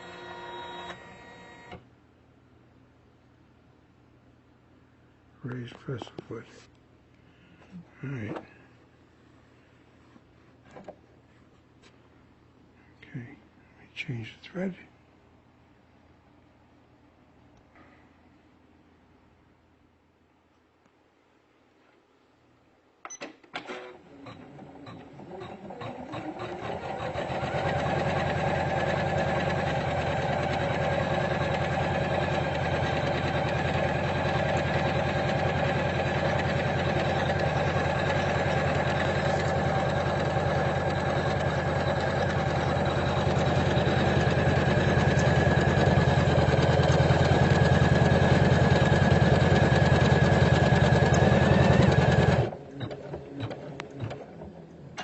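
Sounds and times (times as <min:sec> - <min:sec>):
embroidery machine stitching: 0:23.6 - 0:55.0.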